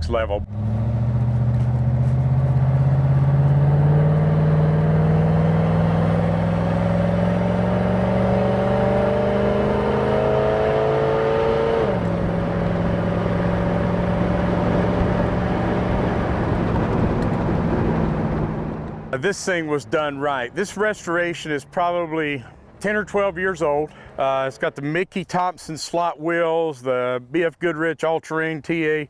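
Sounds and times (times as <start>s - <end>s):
engine running under load: 0.0s - 19.6s.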